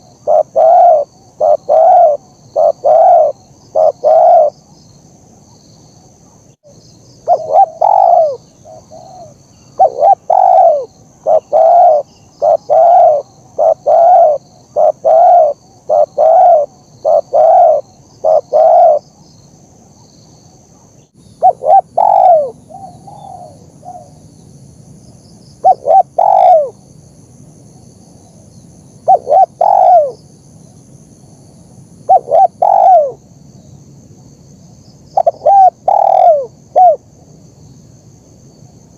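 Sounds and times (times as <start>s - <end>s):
dove cooing: 0.0s - 4.5s, 7.2s - 19.0s, 21.4s - 24.2s, 25.6s - 26.8s, 29.0s - 30.2s, 32.1s - 33.2s, 35.2s - 37.0s.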